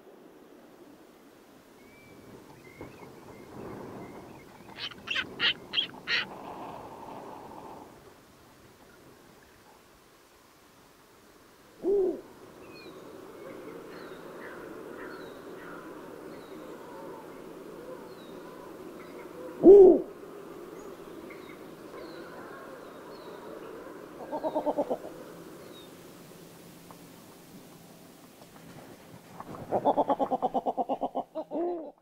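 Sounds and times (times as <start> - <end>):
steady hiss: 0.0 - 31.4
owl hooting: 4.8 - 6.4, 11.8 - 12.3, 19.4 - 20.2, 24.2 - 25.2.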